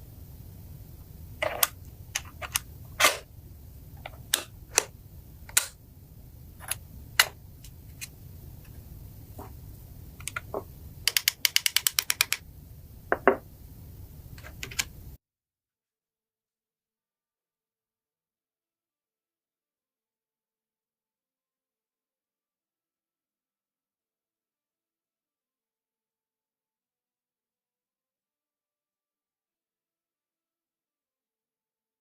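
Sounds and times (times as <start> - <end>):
steady low hum: 0.0 - 15.2.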